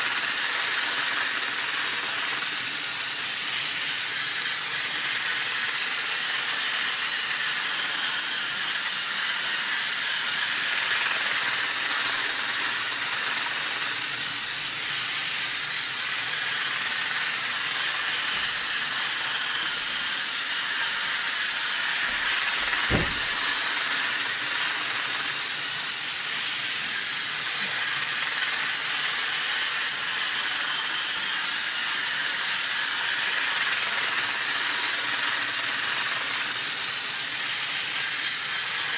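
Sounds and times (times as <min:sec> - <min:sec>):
toy train whirring hiss: 0:00.0 - 0:38.9
short low thump: 0:22.1 - 0:23.5.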